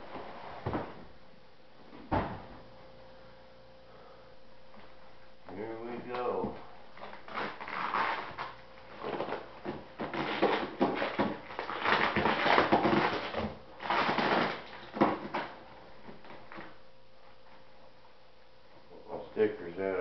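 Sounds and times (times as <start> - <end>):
packing material rustling: 7.0 - 15.6.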